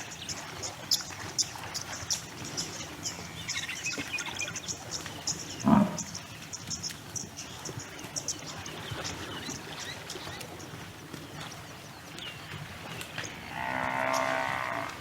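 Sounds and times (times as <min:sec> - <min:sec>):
birds chirping: 0:00.2 - 0:10.3.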